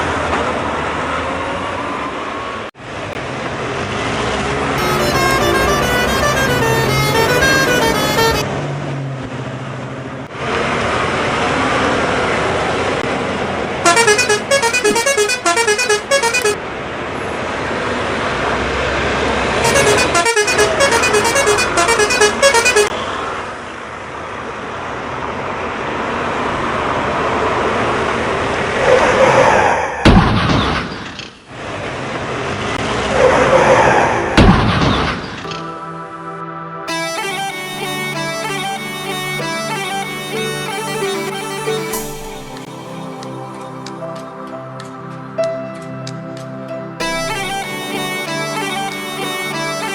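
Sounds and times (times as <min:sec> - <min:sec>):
truck engine running: 0:04.8 - 0:08.5
warbling melodic horn honking: 0:04.8 - 0:08.5, 0:13.8 - 0:16.6, 0:19.6 - 0:22.9, 0:35.6 - 0:43.5, 0:47.0 - 0:49.9.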